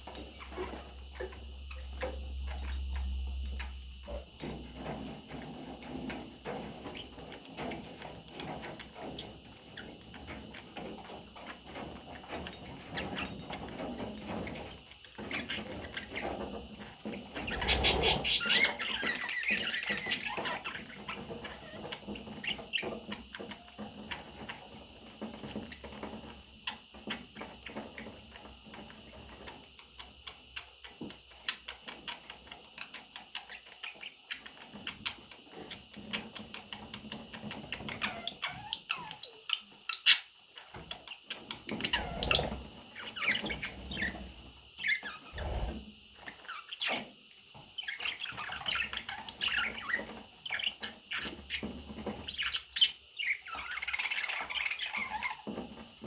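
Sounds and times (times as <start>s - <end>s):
budgies scratching and clicking: 0.1s - 55.8s
faint bird chirps: 17.5s - 20.3s.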